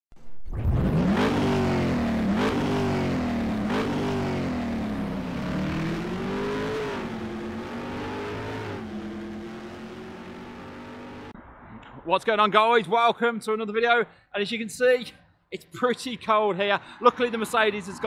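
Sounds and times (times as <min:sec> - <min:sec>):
car engine accelerating: 0:00.6 - 0:11.4.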